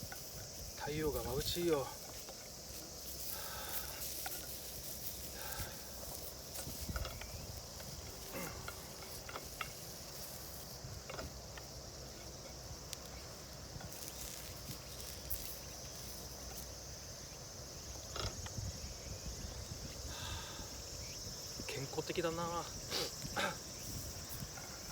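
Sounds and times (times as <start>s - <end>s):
insects chirring: 0.0s - 24.9s
wind rumble on microphone: 6.5s - 8.1s, 17.8s - 21.8s, 22.7s - 24.9s.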